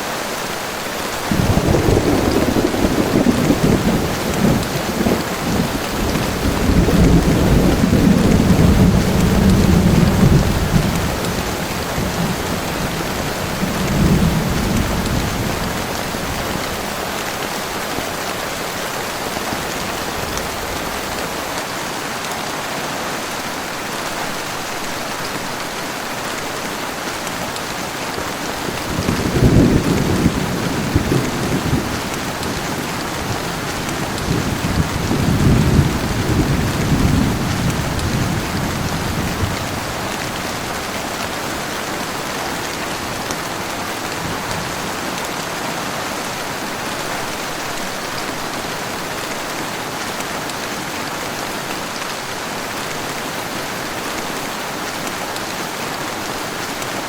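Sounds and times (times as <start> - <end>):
heavy rain falling: 0.0 - 57.0
thunder rumbling: 1.3 - 17.1, 28.5 - 41.3.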